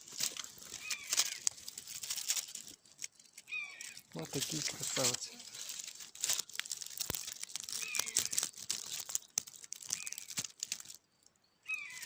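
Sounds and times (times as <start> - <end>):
dry twigs crackling and snapping: 0.0 - 12.0
short high bird calls: 3.4 - 4.1, 11.6 - 12.0.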